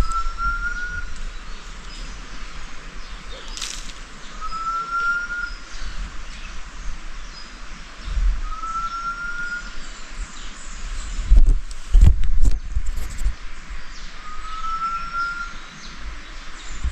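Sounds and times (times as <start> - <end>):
bird whistling a rising note: 0.0 - 1.2, 4.4 - 5.7, 8.4 - 9.8, 14.2 - 15.6
low wind rumble: 0.0 - 16.9.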